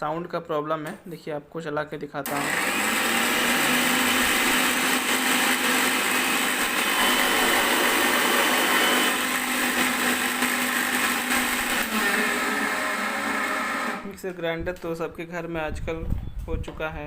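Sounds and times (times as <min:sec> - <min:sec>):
mixer grinder motor running: 0:02.3 - 0:14.1.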